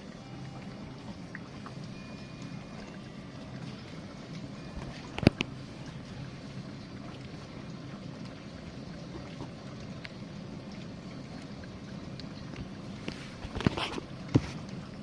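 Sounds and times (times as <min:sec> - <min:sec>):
dishwasher pump hum: 0:00.0 - 0:15.0
water spraying inside tub: 0:00.0 - 0:15.0.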